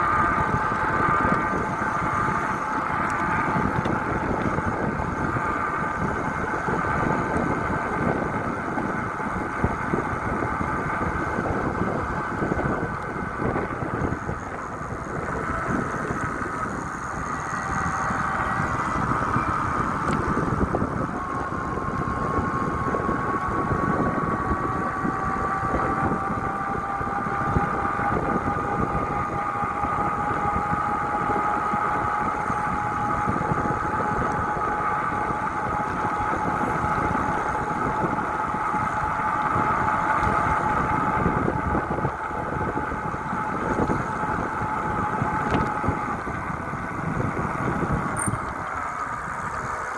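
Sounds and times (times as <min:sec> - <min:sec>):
road and wind noise: 0:00.0 - 0:49.9
thin rising whine: 0:00.0 - 0:49.9
vehicle engine running: 0:00.0 - 0:49.9.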